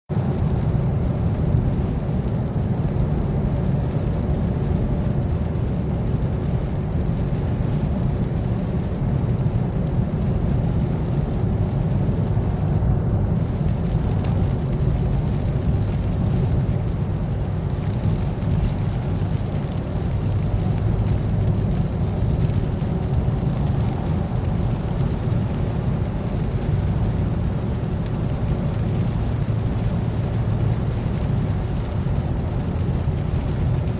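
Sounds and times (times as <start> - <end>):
heavy rain pouring: 0.1 - 33.9.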